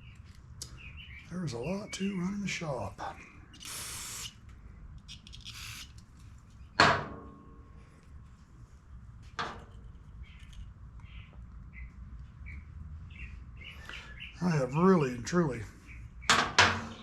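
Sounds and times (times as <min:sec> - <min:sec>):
spray hiss: 0:03.6 - 0:04.4.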